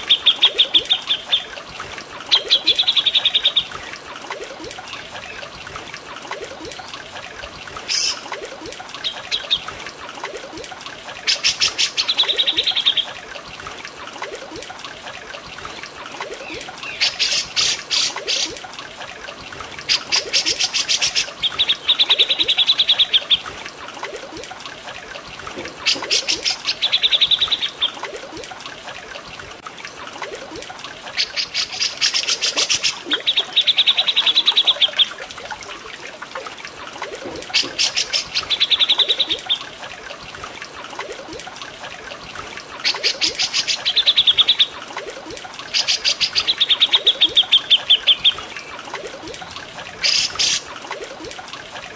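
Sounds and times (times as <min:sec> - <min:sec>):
water trickling: 0:00.0 - 0:51.9
birds singing rattling trills: 0:15.6 - 0:18.5.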